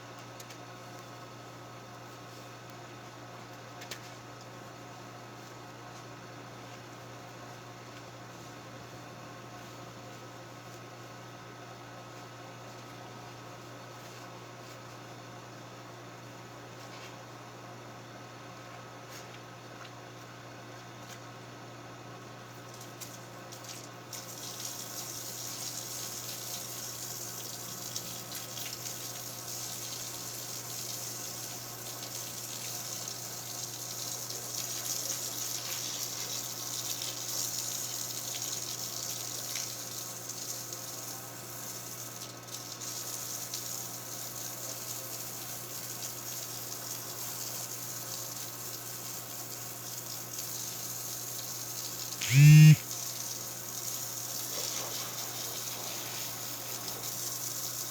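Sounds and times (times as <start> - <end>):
water running from a tap: 23.6 - 52.2, 53.0 - 57.9
loud pitched sound: 52.2 - 52.8.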